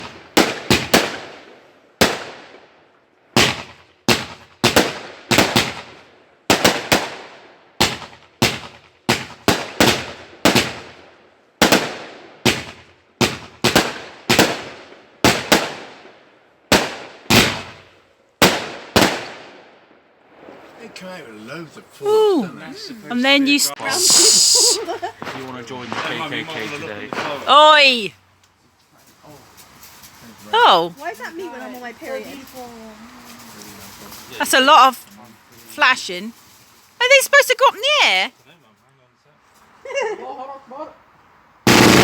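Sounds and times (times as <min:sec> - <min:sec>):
firework bangs with echo: 0:00.0 - 0:02.6, 0:03.4 - 0:11.0, 0:11.6 - 0:16.1, 0:16.7 - 0:19.7, 0:25.1 - 0:27.5, 0:41.7 - 0:42.0.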